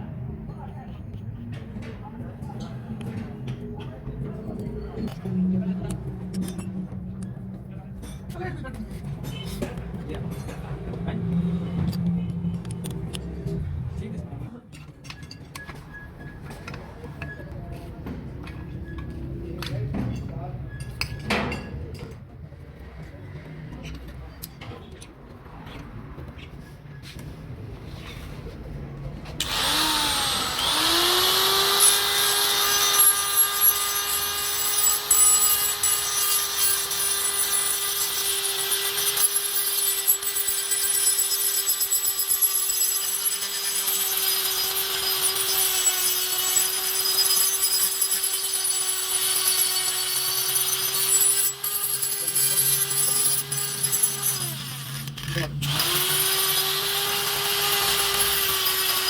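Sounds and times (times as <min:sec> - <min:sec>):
power tool grinding: 0:29.4 - 0:59.0.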